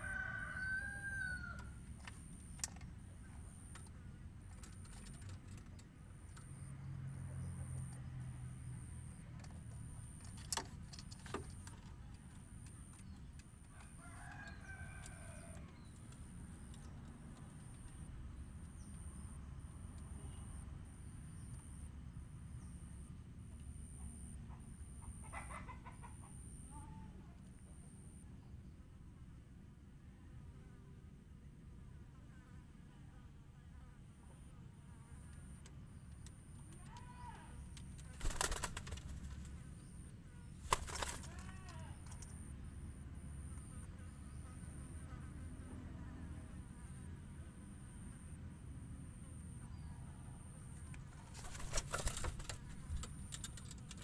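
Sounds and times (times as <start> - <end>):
wing flapping: 4.5 - 5.9, 37.9 - 39.7, 40.6 - 42.3, 51.0 - 54.0.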